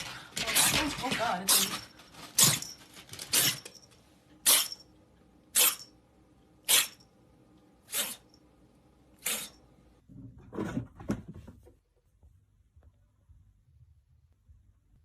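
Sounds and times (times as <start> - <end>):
pet sneezing: 4.4 - 4.8, 6.7 - 7.0, 7.9 - 8.3, 9.2 - 9.6.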